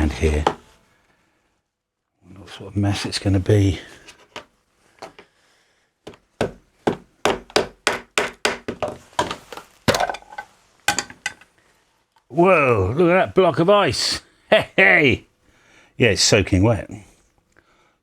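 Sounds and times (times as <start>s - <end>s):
sharp knocks and cracks: 6.1s - 11.5s.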